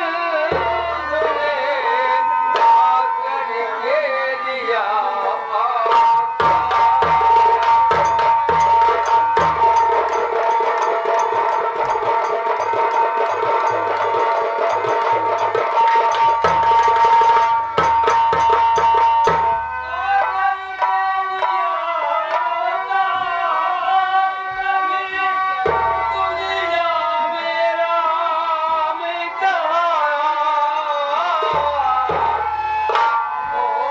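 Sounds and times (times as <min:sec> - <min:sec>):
fast dense drumming: 0:06.4 - 0:19.6, 0:31.4 - 0:33.2.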